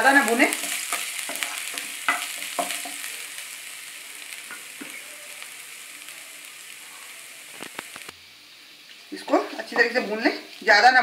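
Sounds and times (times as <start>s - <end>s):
garlic sizzling in hot oil: 0.0s - 11.0s
spatula scraping a pan: 0.2s - 3.1s.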